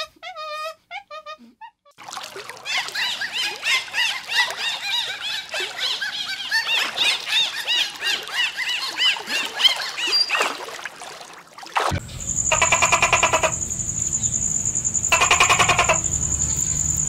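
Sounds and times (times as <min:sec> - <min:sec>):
dolphins squealing: 0:02.6 - 0:10.5, 0:12.1 - 0:17.0.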